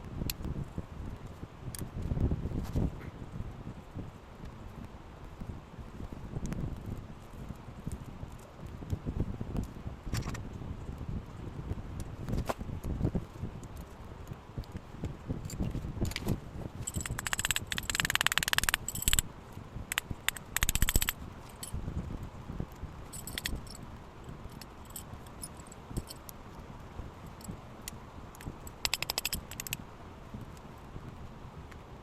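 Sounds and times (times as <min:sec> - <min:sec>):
metal parts clinking and rattling: 0:16.8 - 0:19.2, 0:19.9 - 0:21.8, 0:23.1 - 0:23.8, 0:24.5 - 0:26.2, 0:28.7 - 0:29.8.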